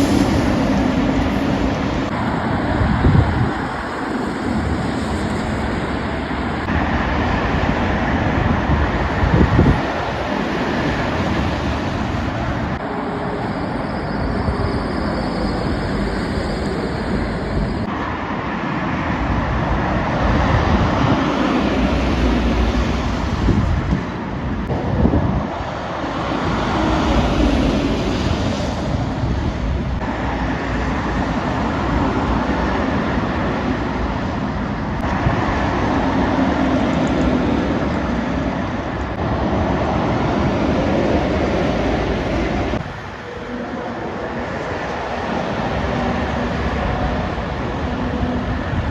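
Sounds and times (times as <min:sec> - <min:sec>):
engine drone: 0:00.0 - 0:20.2
traffic passing at speed: 0:00.0 - 0:48.9.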